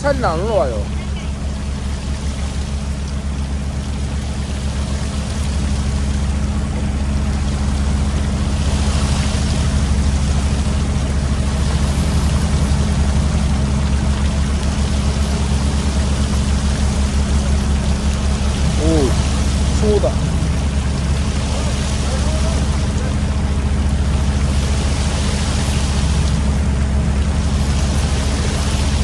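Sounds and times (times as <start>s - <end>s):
boat diesel engine humming: 0.0s - 29.0s
water splashing: 0.0s - 29.0s.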